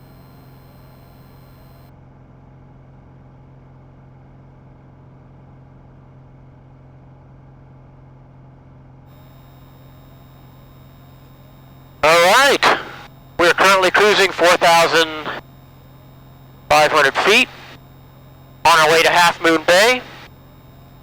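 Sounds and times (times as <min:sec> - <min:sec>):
muffled propeller engine drone: 0:09.2 - 0:21.0.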